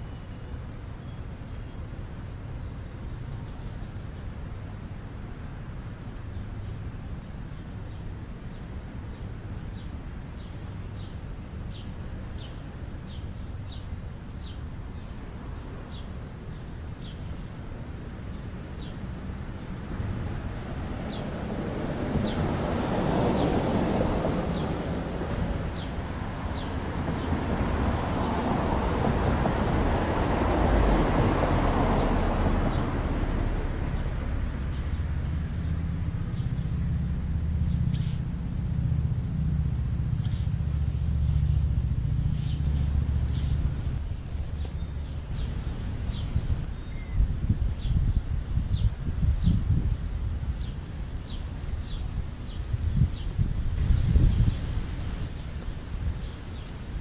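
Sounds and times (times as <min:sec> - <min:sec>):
small birds chirping: 0:00.0 - 0:04.6, 0:06.0 - 0:23.6, 0:24.5 - 0:28.5, 0:37.6 - 0:38.8, 0:40.1 - 0:49.9, 0:50.5 - 0:57.0
broad rushing noise: 0:17.5 - 0:57.0.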